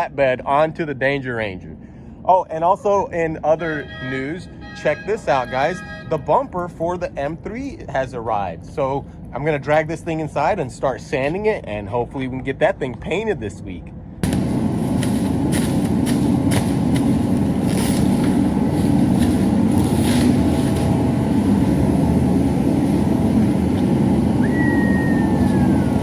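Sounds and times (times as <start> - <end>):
vehicle engine rumble: 1.6 - 26.0
short falling whistle: 24.4 - 26.0.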